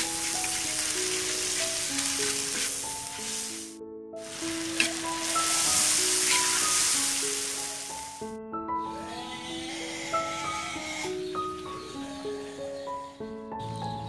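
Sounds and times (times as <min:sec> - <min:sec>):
spatula scraping a wok: 0:00.0 - 0:03.6, 0:04.4 - 0:07.0
food sizzling in a wok: 0:00.0 - 0:08.2
light melodic tune: 0:00.0 - 0:14.0.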